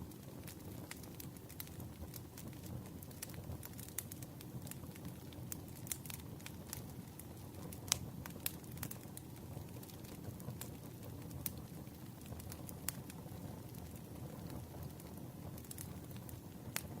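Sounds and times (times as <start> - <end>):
fire crackles and pops: 0.0 - 17.0
flames rumbling: 0.0 - 17.0.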